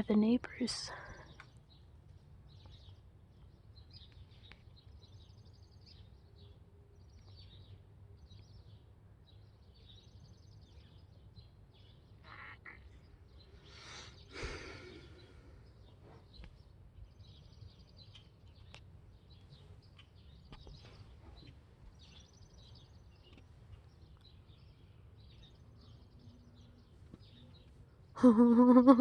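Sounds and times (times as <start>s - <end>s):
distant bird calls chattering: 0.0s - 29.0s
breathy rush: 13.7s - 15.6s.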